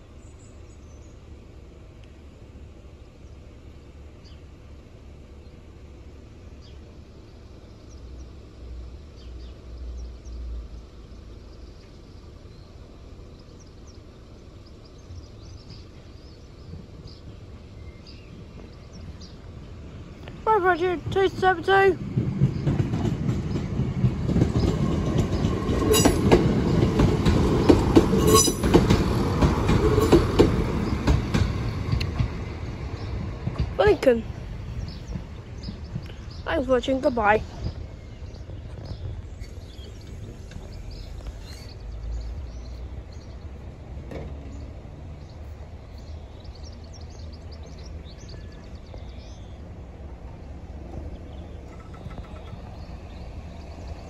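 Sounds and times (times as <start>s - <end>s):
steady low rumble: 0.0s - 44.0s
birds chirping: 5.2s - 54.0s
wheels clacking over rails: 15.4s - 42.0s, 50.3s - 54.0s.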